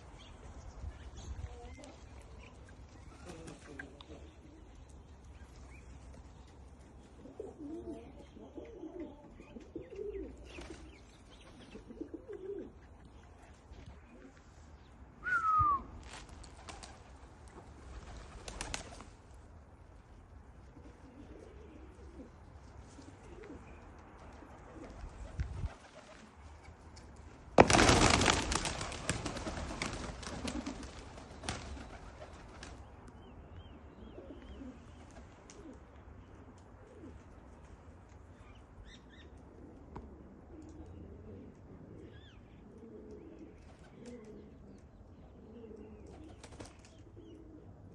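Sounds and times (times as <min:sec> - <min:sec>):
pigeons cooing: 0:07.1 - 0:14.5, 0:20.7 - 0:26.4, 0:33.9 - 0:37.4, 0:38.4 - 0:47.9
short falling whistle: 0:15.2 - 0:15.9
wings flapping: 0:16.0 - 0:19.2, 0:27.6 - 0:32.8, 0:46.3 - 0:46.9.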